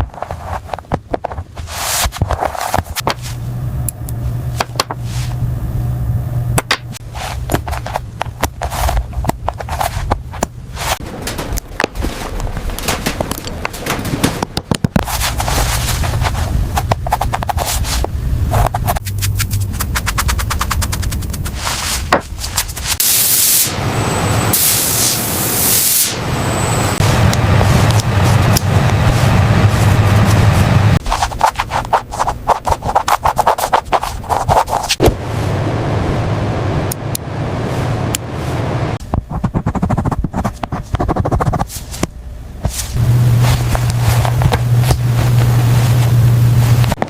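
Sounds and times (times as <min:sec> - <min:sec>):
machinery humming: 0:03.0 - 0:14.5, 0:23.0 - 0:32.5, 0:35.0 - 0:39.2, 0:42.1 - 0:47.0
sharp clicks and knocks: 0:06.6 - 0:15.1.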